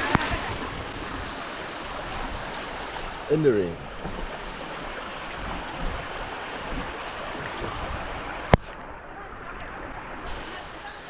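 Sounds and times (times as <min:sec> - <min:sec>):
heavy rain hissing: 0:00.0 - 0:03.4, 0:10.2 - 0:11.0.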